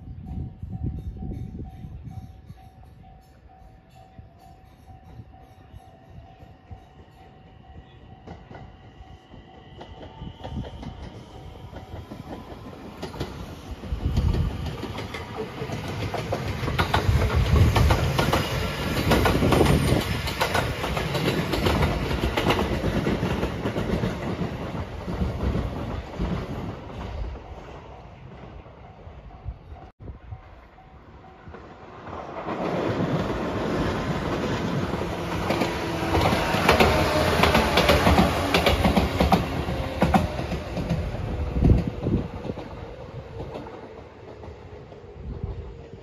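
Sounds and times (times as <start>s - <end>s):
electric train passing: 0.0s - 46.0s
wheels clacking over rail joints: 8.1s - 28.5s, 31.4s - 45.1s.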